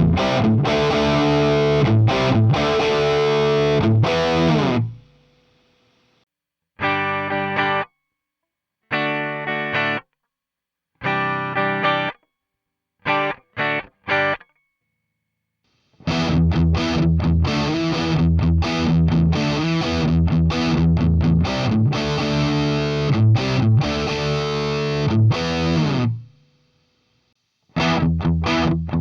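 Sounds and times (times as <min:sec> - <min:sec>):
electric guitar chord stabs: 0:00.0 - 0:05.1, 0:16.0 - 0:26.3
distorted electric guitar riff: 0:00.0 - 0:05.2, 0:06.8 - 0:07.9, 0:08.9 - 0:10.0, 0:11.0 - 0:12.2, 0:13.1 - 0:14.4, 0:15.9 - 0:26.4, 0:27.7 - 0:29.0.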